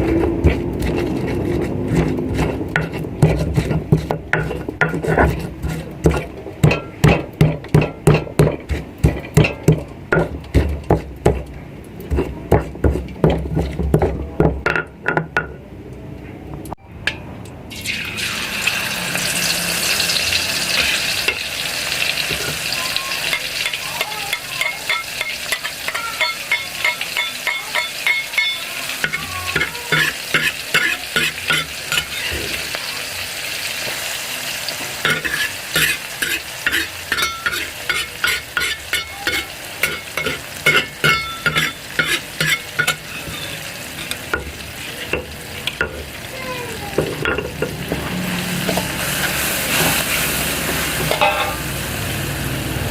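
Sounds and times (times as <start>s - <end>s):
food sizzling in hot oil: 0.0s - 14.1s, 17.7s - 52.9s
spatula scraping a pan: 0.0s - 14.3s, 19.2s - 34.0s, 34.8s - 51.6s.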